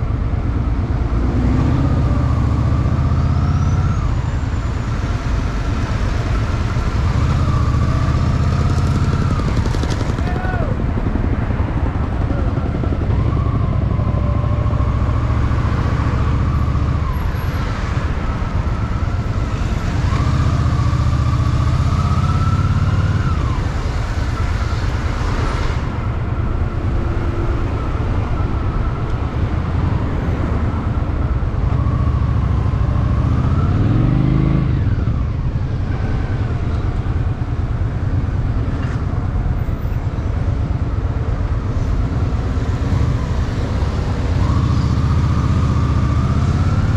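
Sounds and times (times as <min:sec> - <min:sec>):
road and wind noise: 0:00.0 - 0:46.9
motorcycle engine accelerating: 0:06.4 - 0:11.1.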